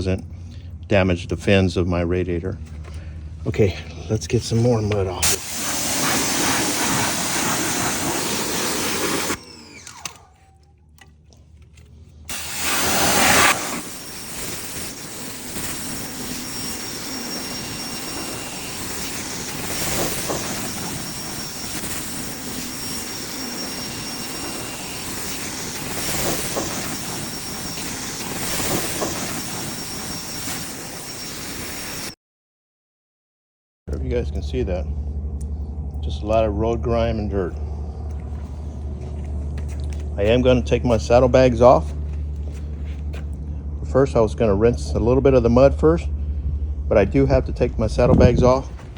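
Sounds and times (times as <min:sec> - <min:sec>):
pressure washer spraying water: 0:04.3 - 0:10.2, 0:12.3 - 0:32.2.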